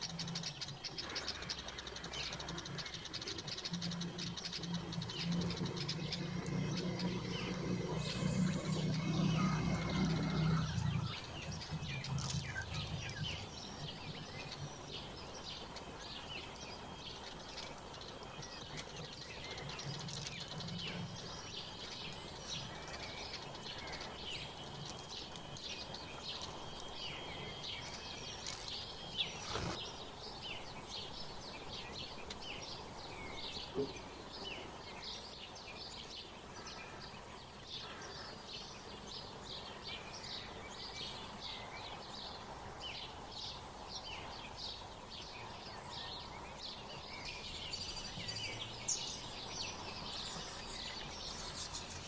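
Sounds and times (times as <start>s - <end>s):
thin steady bird trill: 0.0s - 33.4s, 45.5s - 52.0s
songbirds chirping: 0.0s - 52.0s.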